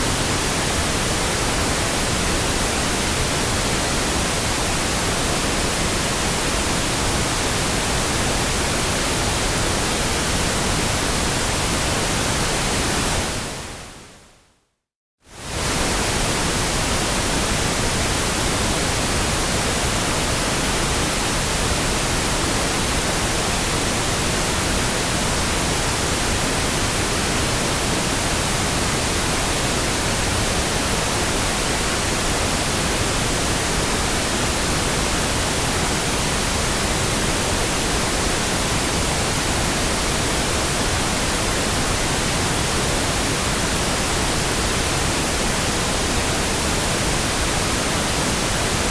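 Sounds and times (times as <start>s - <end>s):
pink noise hiss: 15.3s - 48.9s.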